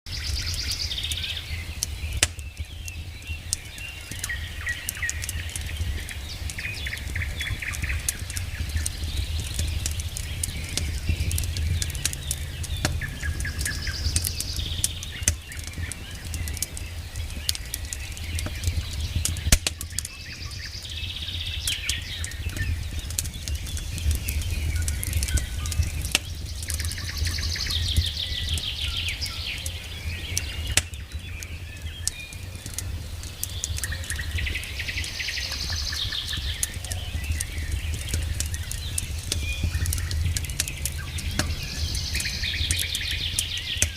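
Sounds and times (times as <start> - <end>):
campfire crackling and popping: 0.1 - 43.9
songbird trilling: 10.4 - 16.5, 33.8 - 43.9.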